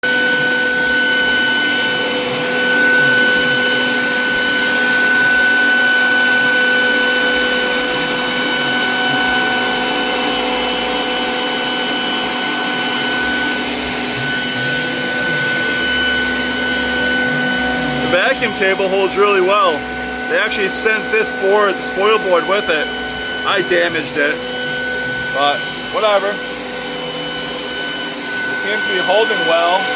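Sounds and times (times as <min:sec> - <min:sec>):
vacuum pump whining: 0:00.0 - 0:29.9.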